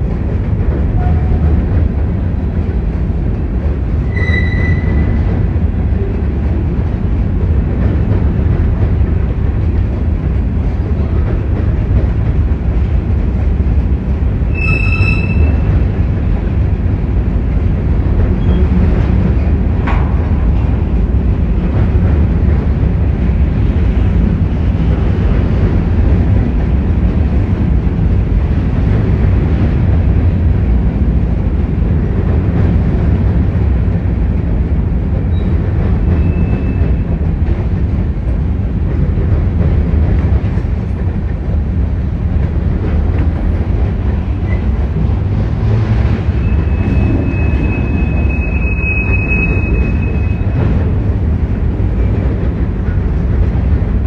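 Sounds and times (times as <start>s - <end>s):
freight train rumbling past: 0.0s - 54.0s
high-pitched wheel squeal: 4.1s - 5.2s, 14.5s - 15.7s, 46.4s - 50.6s.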